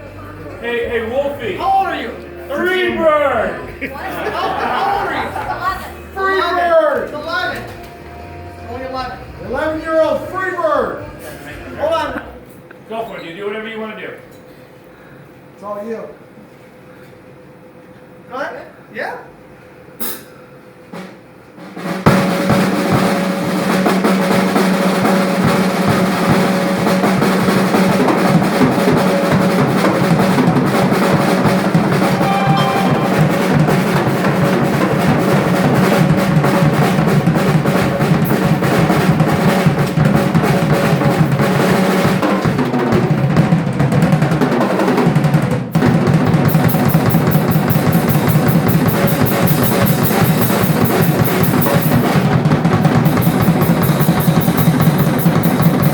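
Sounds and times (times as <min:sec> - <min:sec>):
rock drum kit playing: 0:21.8 - 0:55.9
cymbals beat: 0:25.0 - 0:42.5, 0:46.6 - 0:55.9.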